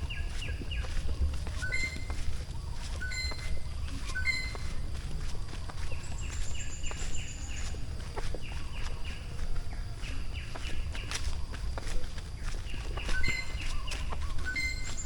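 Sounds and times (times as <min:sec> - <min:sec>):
low jungle rumble: 0:00.0 - 0:14.5
bird calling downward notes: 0:01.5 - 0:02.2.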